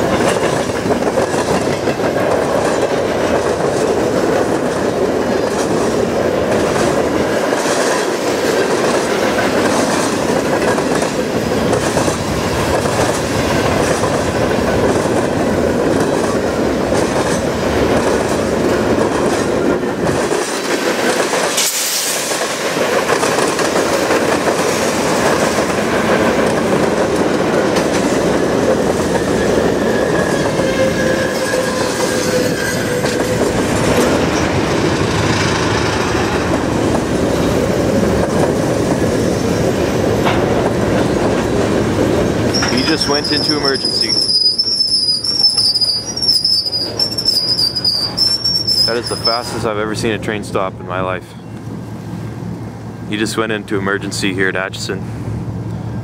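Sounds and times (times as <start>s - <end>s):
freight train wheel clatter: 0.0s - 50.8s
faint wheel squeal: 29.3s - 33.3s, 42.5s - 49.6s.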